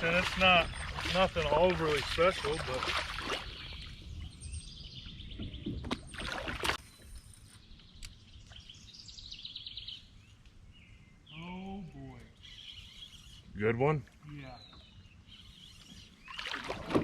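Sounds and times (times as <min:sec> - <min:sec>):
water splashes: 0:00.0 - 0:04.0, 0:05.7 - 0:06.8, 0:16.2 - 0:17.0
low rumble of wind and water: 0:00.0 - 0:09.5, 0:13.4 - 0:17.0
bird trilling: 0:00.3 - 0:01.7, 0:12.4 - 0:13.5.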